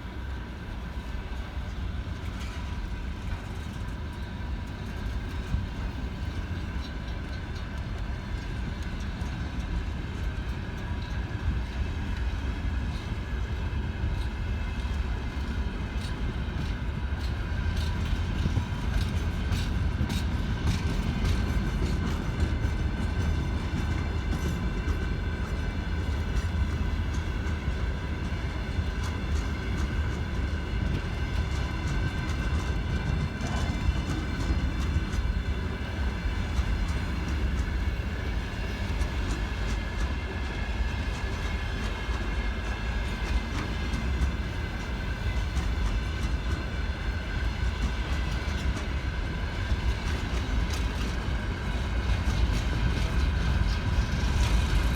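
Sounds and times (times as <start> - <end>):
train wheels rumbling on rail: 0.0 - 54.9.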